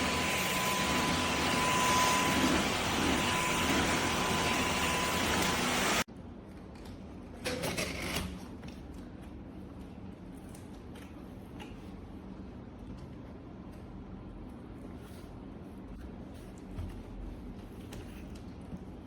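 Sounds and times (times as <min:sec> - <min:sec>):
vacuum cleaner running: 0:00.0 - 0:06.1
faint clicks and handling sounds: 0:06.4 - 0:12.2.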